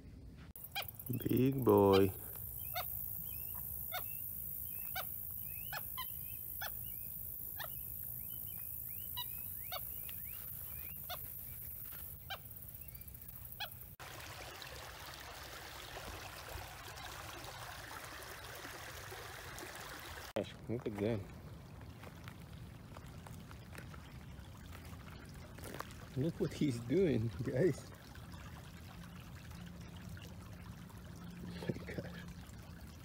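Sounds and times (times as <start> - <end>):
marsh bird short calls: 0.7 - 13.8
faint bird chirps: 0.7 - 13.9.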